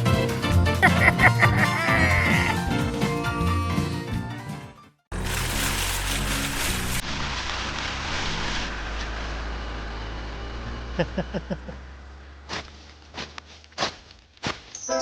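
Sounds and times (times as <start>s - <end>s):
vehicle engine humming: 5.1s - 14.4s.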